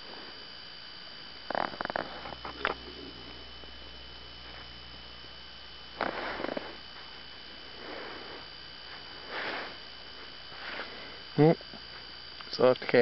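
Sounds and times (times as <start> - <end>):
low hum: 0.0 - 13.0
person sniffing: 6.0 - 6.8, 9.2 - 9.8, 10.6 - 11.2.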